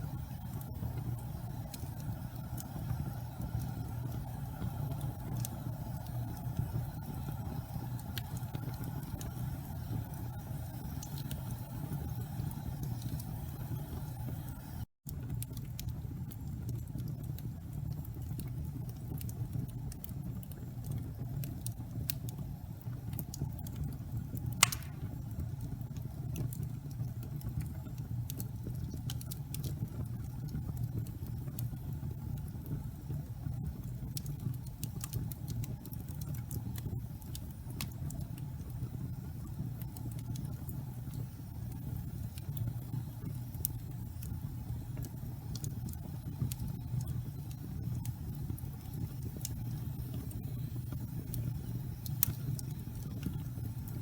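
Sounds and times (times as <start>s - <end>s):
wood fire crackling: 0.0s - 54.0s
loud pop of fire: 24.6s - 25.2s.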